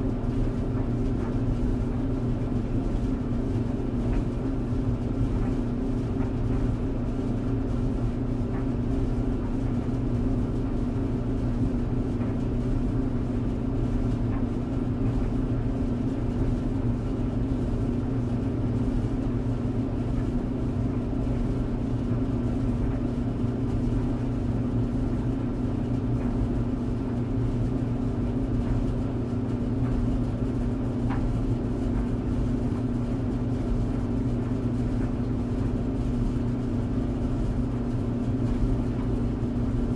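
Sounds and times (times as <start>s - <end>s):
tumble dryer humming: 0.0s - 18.6s.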